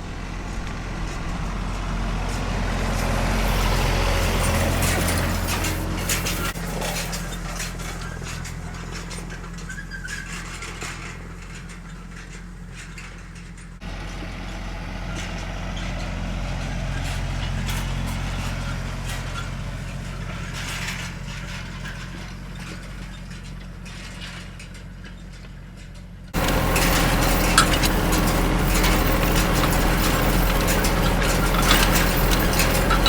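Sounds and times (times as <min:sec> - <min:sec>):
tractor engine running: 0:00.0 - 0:33.0
light mechanical clatter: 0:00.2 - 0:14.2, 0:16.9 - 0:33.0.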